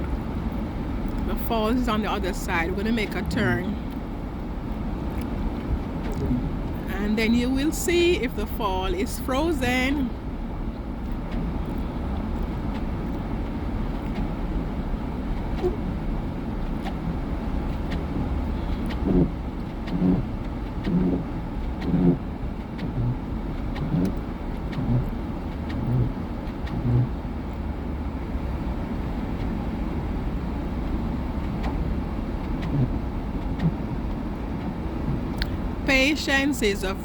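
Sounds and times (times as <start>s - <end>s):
car road and engine rumble: 0.0s - 37.0s
short low thuds: 11.2s - 27.4s, 30.8s - 36.1s.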